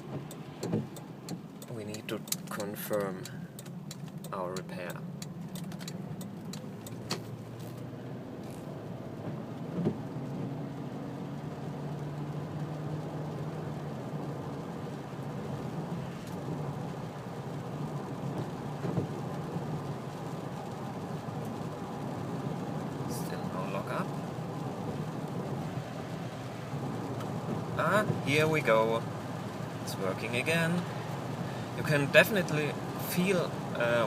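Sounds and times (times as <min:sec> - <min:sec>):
engine and road drone in car cabin: 0:00.0 - 0:34.0.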